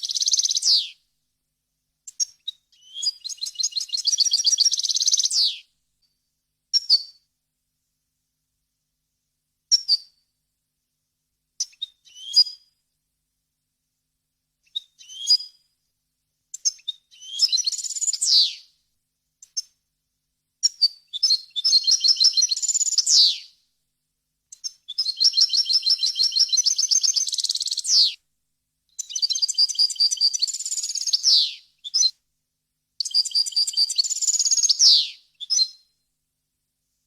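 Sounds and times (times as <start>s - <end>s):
goldfinch singing: 0.0s - 0.9s, 24.9s - 28.2s, 29.0s - 32.1s, 33.0s - 35.7s.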